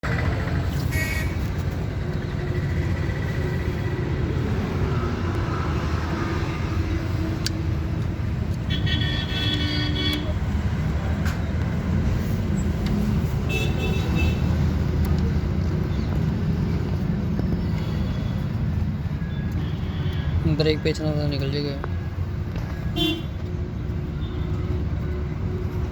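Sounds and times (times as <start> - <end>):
road traffic rumble: 0.0 - 25.9
vehicle horns tooting: 0.9 - 1.4, 8.6 - 10.4, 13.5 - 14.5, 22.8 - 23.3.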